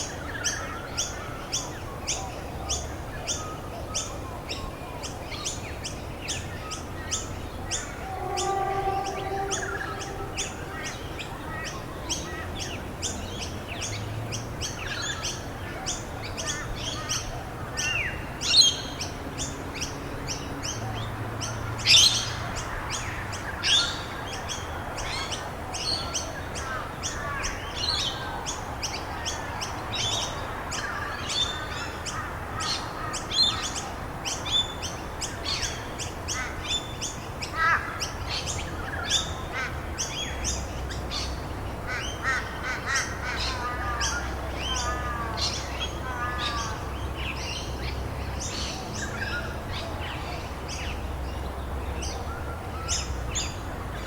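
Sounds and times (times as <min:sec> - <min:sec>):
small birds chirping and trilling: 0:17.9 - 0:54.0.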